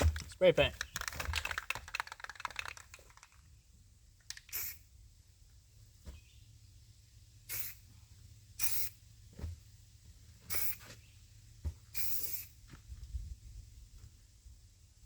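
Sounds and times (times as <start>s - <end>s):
spray paint can bursts: 0.8s - 3.4s, 4.3s - 4.9s, 7.5s - 7.8s, 8.6s - 9.0s, 10.5s - 10.8s, 11.9s - 12.6s.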